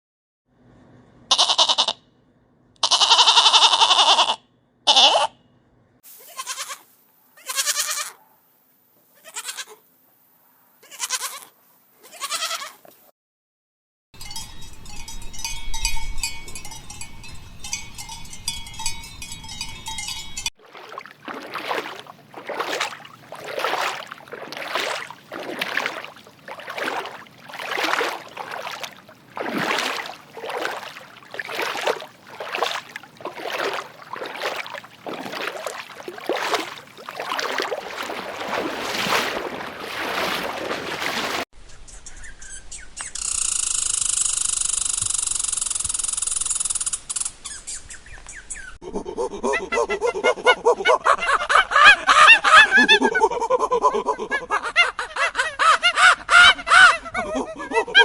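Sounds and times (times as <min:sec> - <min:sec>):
animal calling repeatedly: 0:02.8 - 0:05.4.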